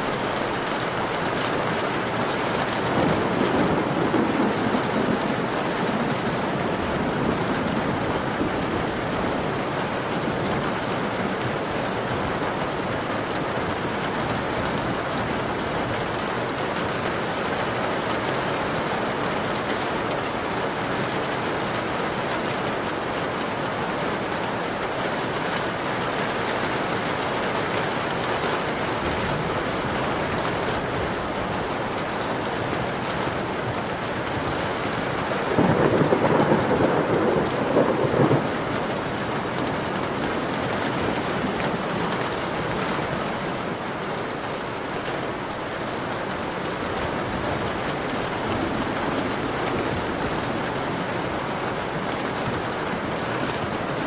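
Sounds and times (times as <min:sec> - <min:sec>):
rain pattering on window: 0:00.0 - 0:54.0
thunder rumbling: 0:00.1 - 0:16.6, 0:32.8 - 0:43.9, 0:45.2 - 0:54.0.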